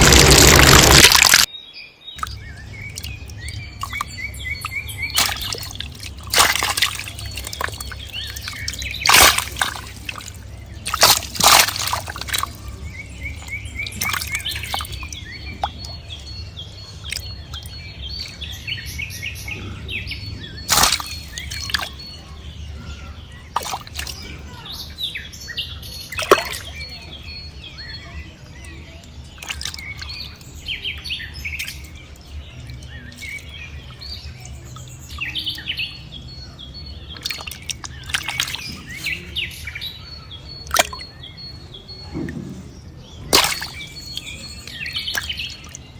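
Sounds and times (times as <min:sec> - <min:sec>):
water splashing: 0:00.0 - 0:01.5, 0:02.2 - 0:18.6, 0:20.5 - 0:22.4, 0:23.5 - 0:24.5, 0:26.1 - 0:27.0, 0:29.2 - 0:30.5, 0:37.0 - 0:39.4, 0:40.7 - 0:41.1, 0:43.3 - 0:45.9
small birds chirping: 0:00.0 - 0:45.9.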